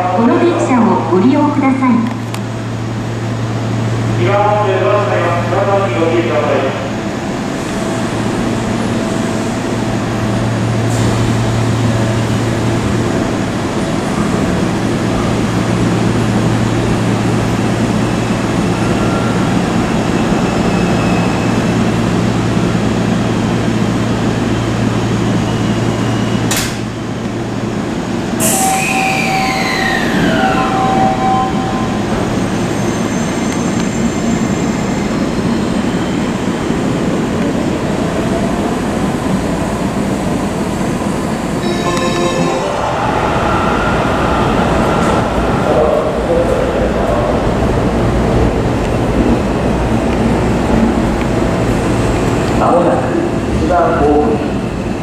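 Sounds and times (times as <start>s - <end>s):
electric train humming: 0.0s - 55.0s.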